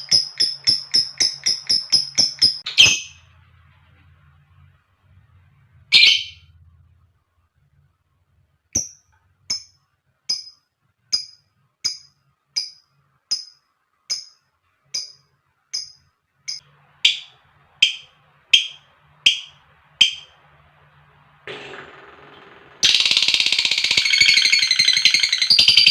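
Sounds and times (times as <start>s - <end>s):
lovebird calling: 5.9s - 6.4s, 22.8s - 25.9s.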